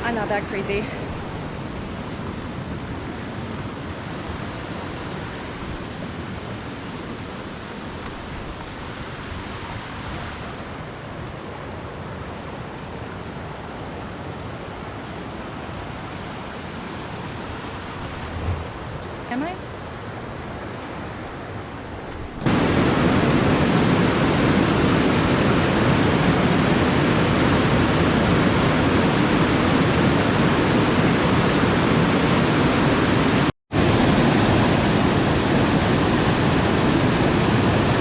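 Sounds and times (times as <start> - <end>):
waterfall rushing: 22.5 - 38.0.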